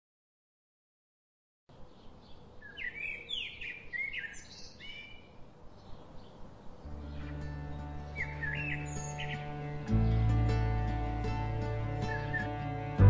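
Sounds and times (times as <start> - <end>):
birds singing: 1.7 - 13.0
faint outdoor hiss: 1.7 - 13.0
music: 6.9 - 13.0.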